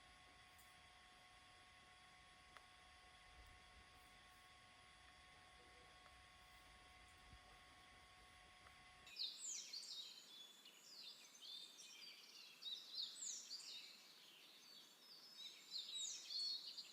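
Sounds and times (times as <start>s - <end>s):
faint electrical hum: 0.0s - 16.9s
songbirds singing: 9.1s - 16.9s.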